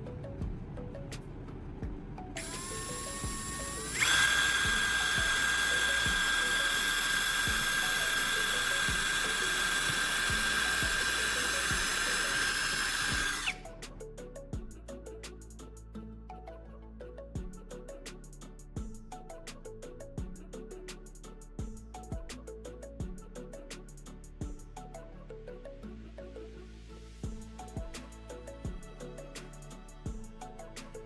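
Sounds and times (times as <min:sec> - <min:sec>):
background music: 0:00.0 - 0:31.0
power tool motor whining: 0:02.4 - 0:13.6.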